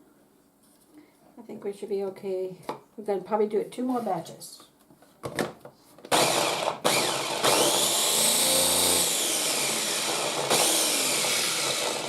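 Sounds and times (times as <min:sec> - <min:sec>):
electric chopper motor blending: 0:06.1 - 0:12.0.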